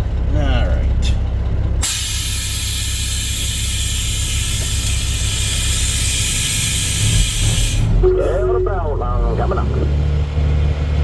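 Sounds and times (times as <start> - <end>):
diesel engine rumble: 0.0 - 11.0
compressed air hissing: 1.8 - 7.9.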